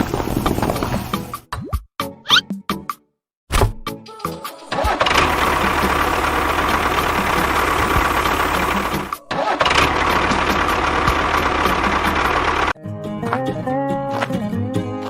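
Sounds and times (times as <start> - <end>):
tractor engine running: 0.0 - 1.4, 4.8 - 12.8.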